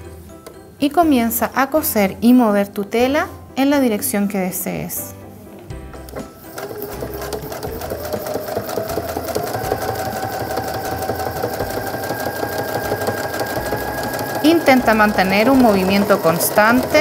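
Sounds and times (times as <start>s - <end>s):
sewing machine running: 6.4s - 17.0s.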